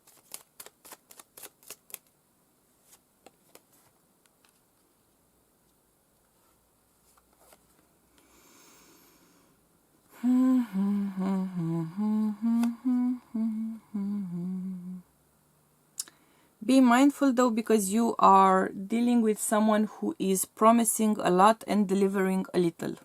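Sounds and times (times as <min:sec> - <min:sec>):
soft rustle: 0:02.7 - 0:08.0
woman humming a tune: 0:10.1 - 0:15.1.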